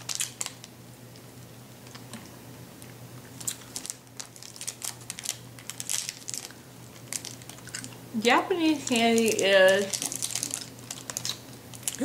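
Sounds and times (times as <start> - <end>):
hard candy crunching: 0.0 - 1.2, 1.8 - 12.0.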